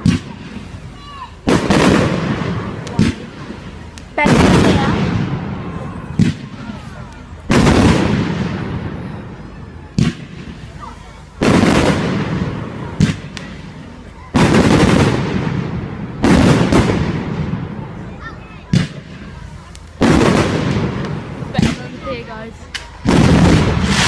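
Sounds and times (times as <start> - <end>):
firework sharp crack: 0.0 - 24.0
firework bang with rumbling tail: 1.5 - 3.6, 7.5 - 9.2, 11.4 - 18.0, 20.0 - 22.0, 23.0 - 24.0.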